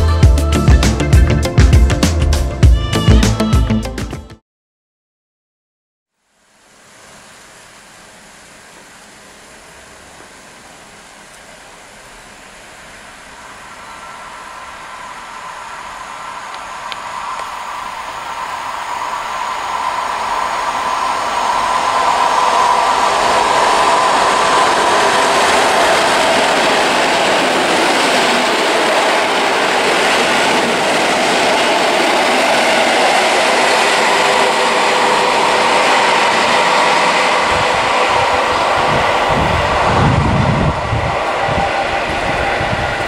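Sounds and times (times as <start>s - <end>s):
train whine: 6.3s - 43.0s
train rushing past: 9.3s - 43.0s.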